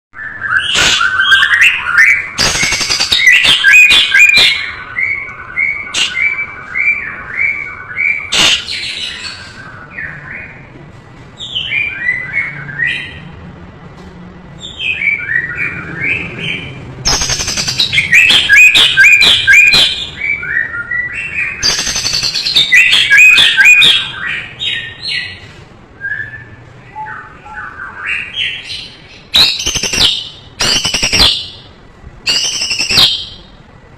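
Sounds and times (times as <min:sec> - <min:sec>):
bird singing whistles: 0:00.2 - 0:10.6, 0:17.1 - 0:25.4, 0:26.0 - 0:33.5.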